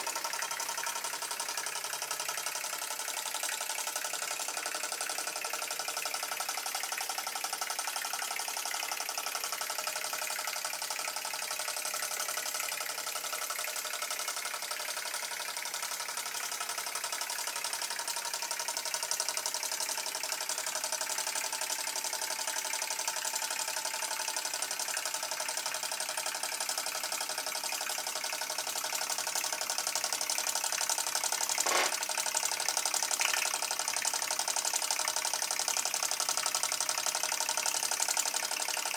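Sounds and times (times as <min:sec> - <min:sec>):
steam engine exhaust chuffs: 0:00.0 - 0:12.0
steam hissing: 0:31.5 - 0:32.0.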